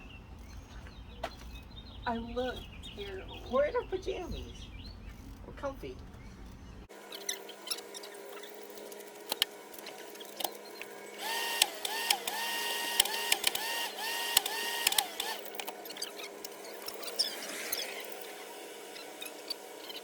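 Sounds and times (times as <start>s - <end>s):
small electric motor spinning: 6.2s - 20.0s.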